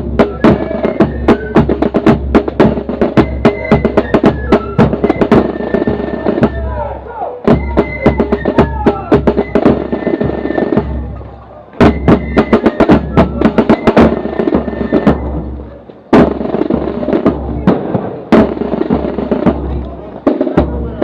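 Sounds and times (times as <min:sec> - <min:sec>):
bass drum: 0:00.0 - 0:05.5, 0:15.1 - 0:21.0
snare drum strokes: 0:00.0 - 0:06.8, 0:07.4 - 0:21.0
flutes holding high note: 0:03.2 - 0:14.0.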